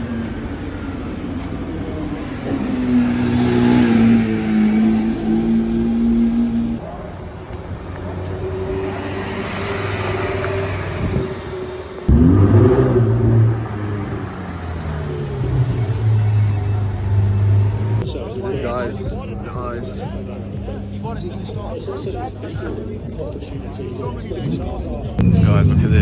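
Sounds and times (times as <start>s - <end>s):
higher car engine note: 0.0s - 6.8s, 8.2s - 21.7s
car engine running: 0.0s - 26.0s.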